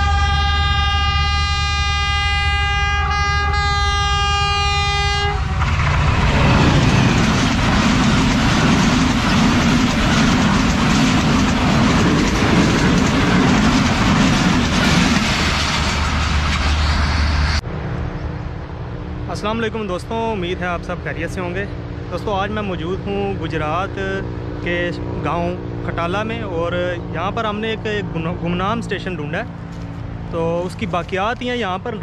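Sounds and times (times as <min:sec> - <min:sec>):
locomotive horn: 0:00.0 - 0:05.8
passenger train passing: 0:00.0 - 0:32.0.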